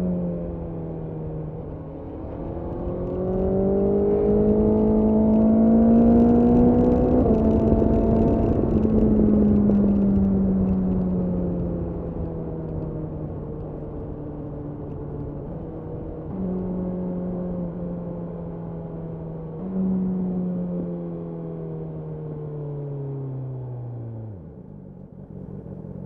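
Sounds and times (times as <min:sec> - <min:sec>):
motorcycle engine running: 0:24.4 - 0:26.0.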